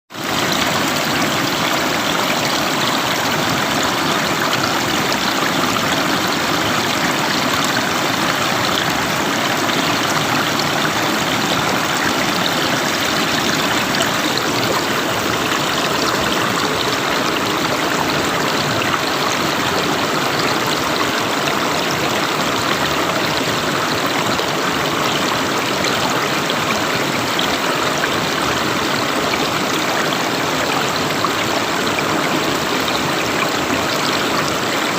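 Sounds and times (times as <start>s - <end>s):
river water flowing: 0.1s - 34.9s.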